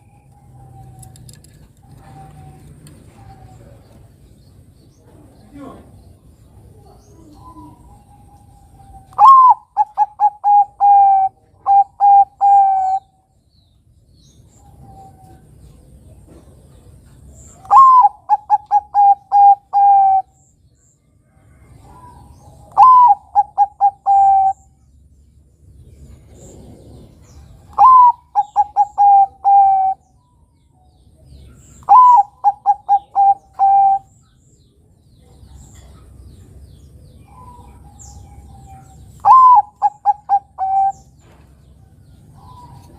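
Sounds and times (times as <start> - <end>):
dove cooing: 0.3 - 4.2, 6.7 - 13.2, 17.6 - 20.4, 21.7 - 24.8, 26.1 - 30.1, 31.5 - 34.2, 37.0 - 42.9.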